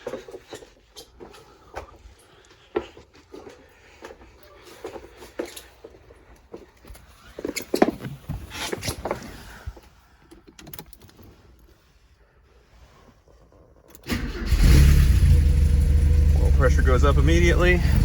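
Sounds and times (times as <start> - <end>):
car engine starting and running: 14.0 - 18.0.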